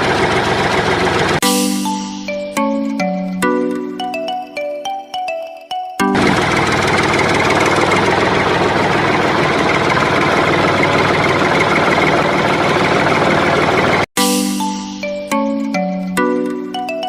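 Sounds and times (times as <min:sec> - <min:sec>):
engine knocking chatter: 0:00.0 - 0:01.4, 0:06.1 - 0:14.1
chiming music: 0:01.4 - 0:06.3, 0:14.2 - 0:17.0.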